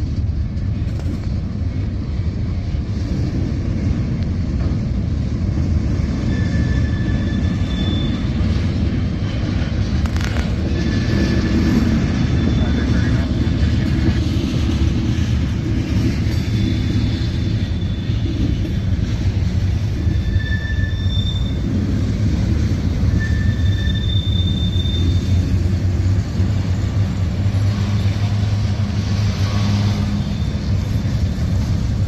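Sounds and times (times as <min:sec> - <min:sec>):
steel wheels rumbling on rails: 0:00.0 - 0:32.0
high-pitched wheel squeals: 0:06.1 - 0:08.8, 0:10.4 - 0:13.3, 0:17.4 - 0:18.7, 0:20.0 - 0:21.9, 0:22.9 - 0:25.7, 0:29.4 - 0:31.7.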